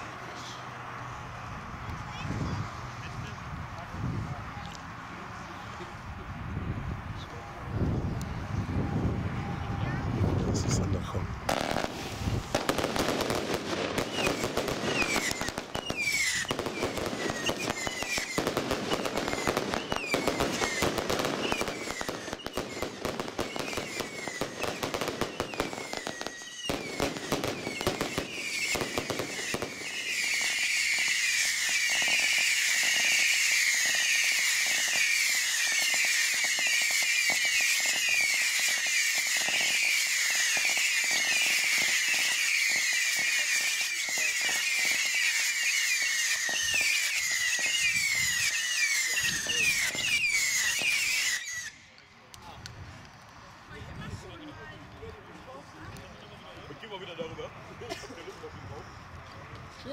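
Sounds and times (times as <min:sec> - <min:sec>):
fireworks crackling and popping: 0:10.2 - 0:59.9
fireworks whistling: 0:11.5 - 0:52.0.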